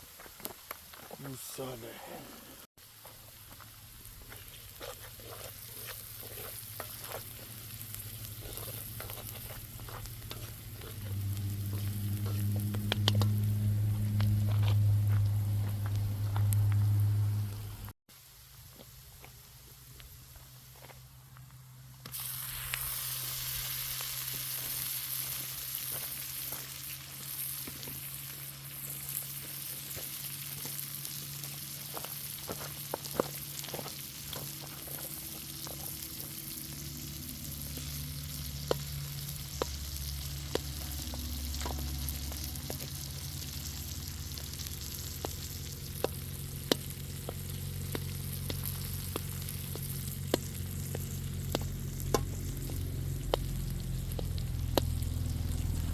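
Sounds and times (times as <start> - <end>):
food sizzling in hot oil: 2.8 - 20.4, 22.0 - 55.9
sharp clicks and pops: 6.7 - 13.5, 45.2 - 55.8.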